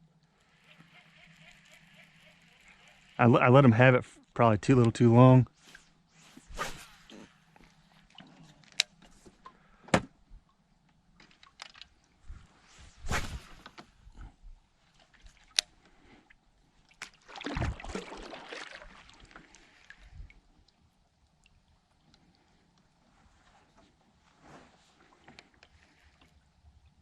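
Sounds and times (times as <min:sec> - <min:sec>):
water sloshing: 0:16.8 - 0:20.0
rush of water: 0:17.2 - 0:19.9.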